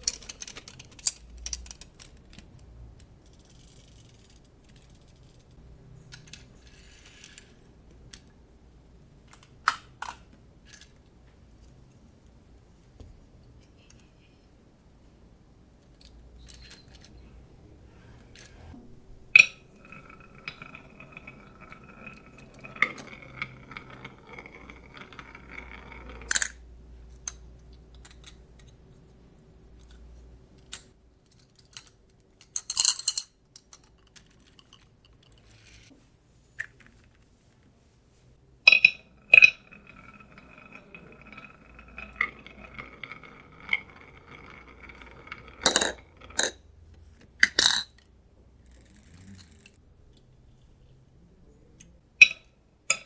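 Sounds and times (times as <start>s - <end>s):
marbles clicking: 19.3s - 26.6s, 38.7s - 46.6s
marbles rolling down track: 19.3s - 26.7s, 38.7s - 46.6s.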